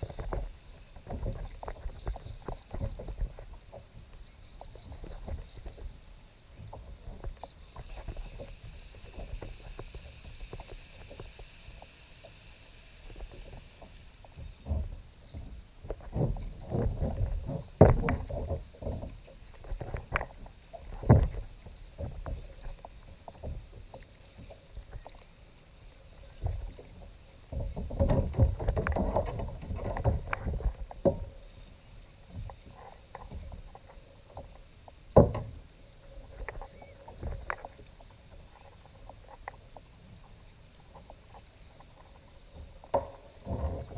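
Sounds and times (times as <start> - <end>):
splashing and clatter: 0.0 - 6.0, 13.1 - 25.2, 26.2 - 31.5
knocks against kayak hull: 35.2 - 35.6.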